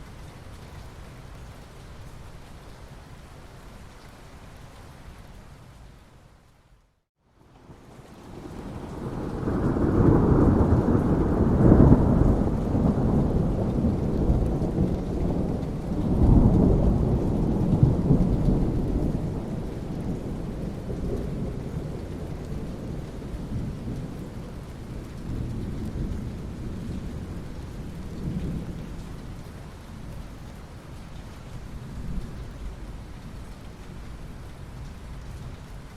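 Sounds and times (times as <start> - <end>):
steady rain: 0.0 - 35.9
rolling thunder: 8.3 - 29.1.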